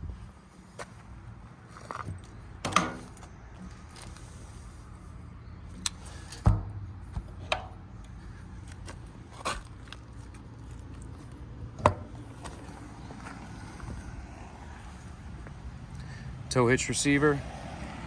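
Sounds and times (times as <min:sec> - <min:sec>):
metal doors and latches clanking: 0:02.0 - 0:04.1, 0:05.8 - 0:08.1
heavy thump: 0:06.4 - 0:07.3.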